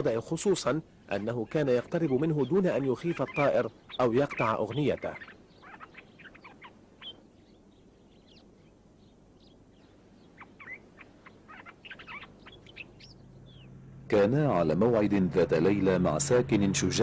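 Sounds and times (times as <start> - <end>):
songbird singing quick notes: 1.2 - 13.8.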